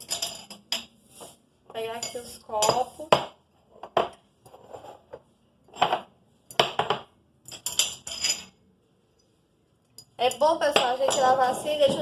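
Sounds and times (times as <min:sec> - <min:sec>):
glasses and dishes clinking: 0:00.0 - 0:00.9, 0:05.7 - 0:08.6, 0:10.8 - 0:12.0.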